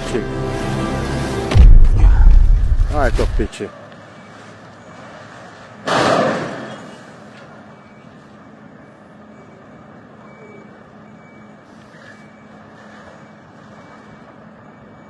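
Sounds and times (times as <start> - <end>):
sudden loud noise: 1.3 - 3.5
hum of vehicles on street: 2.2 - 15.0.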